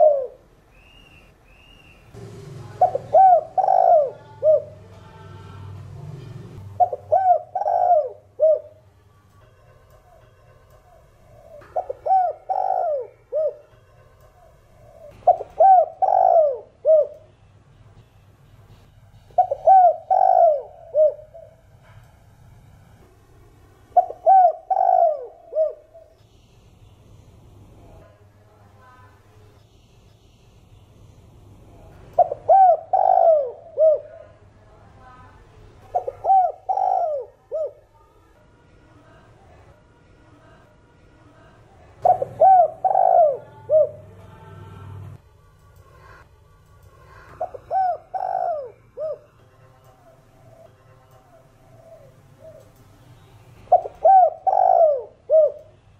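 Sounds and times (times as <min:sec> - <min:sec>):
dove cooing: 0:00.0 - 0:01.2, 0:02.7 - 0:08.9, 0:10.0 - 0:17.3, 0:19.4 - 0:22.0, 0:23.9 - 0:26.2, 0:32.1 - 0:34.4, 0:35.8 - 0:37.9, 0:42.0 - 0:45.2, 0:47.0 - 0:49.4, 0:50.0 - 0:52.8, 0:53.7 - 0:55.8.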